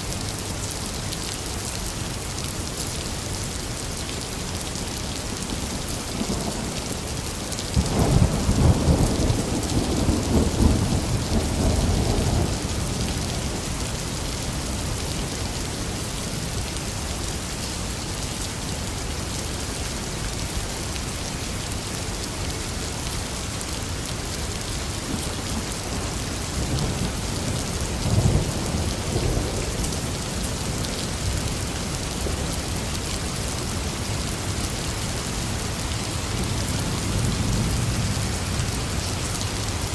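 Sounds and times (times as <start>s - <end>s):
heavy rain falling: 0.0s - 39.9s
thunder rumbling: 5.6s - 14.8s.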